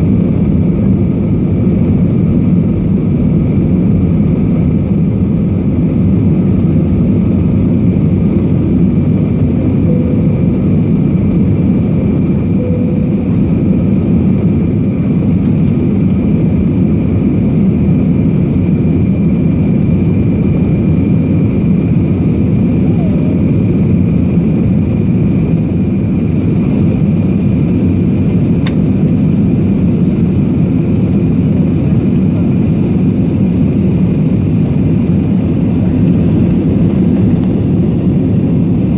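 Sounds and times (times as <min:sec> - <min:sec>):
airliner cabin engine rush: 0:00.0 - 0:38.9
faint high whine: 0:09.1 - 0:15.8.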